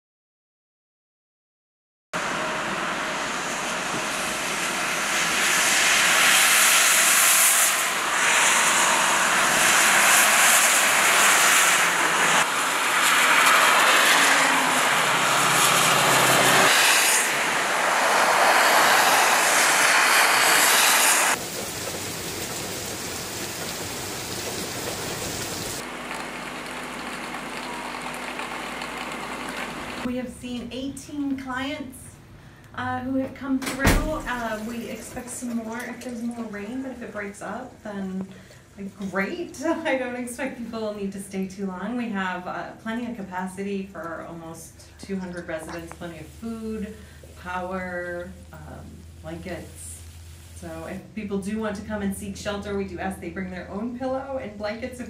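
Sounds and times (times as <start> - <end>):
wind: 2.2 - 33.2
heavy rain falling: 3.8 - 30.1.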